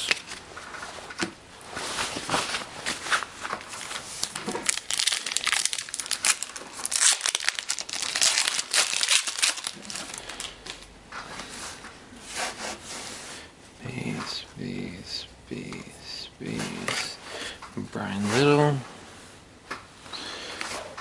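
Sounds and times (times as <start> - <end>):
foil wrapper crinkling and tearing: 2.9 - 10.9.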